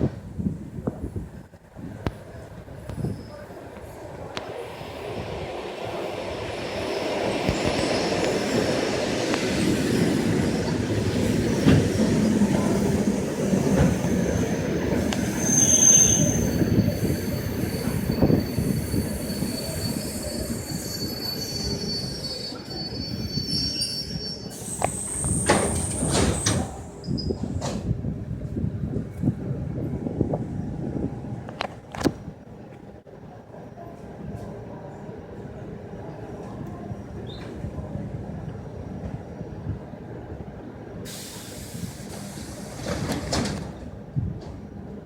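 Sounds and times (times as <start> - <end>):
electric train rumbling past: 0.0 - 33.6
high-pitched wheel squeals: 14.2 - 26.1.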